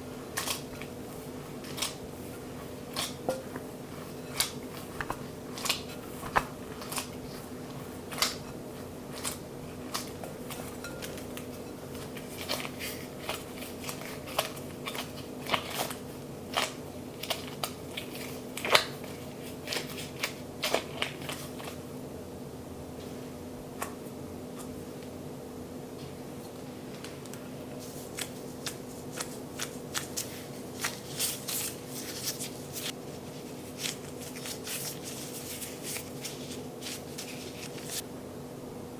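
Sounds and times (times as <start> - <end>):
low electrical hum: 0.0 - 38.9
utensils tapping and clicking: 3.2 - 3.7, 9.9 - 12.1.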